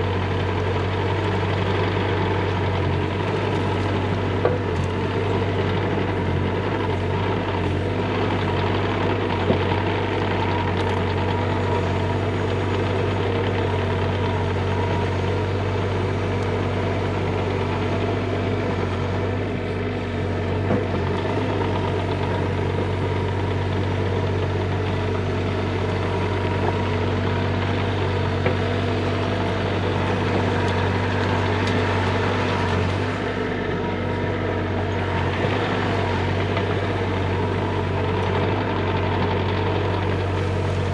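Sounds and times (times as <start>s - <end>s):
diesel engine running steadily: 0.0s - 40.9s.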